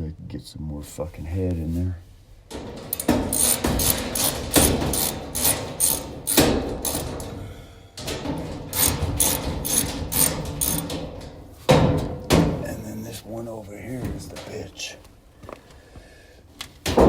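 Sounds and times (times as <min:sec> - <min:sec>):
hand tool driving screws into metal: 0:02.5 - 0:07.4, 0:08.0 - 0:12.4.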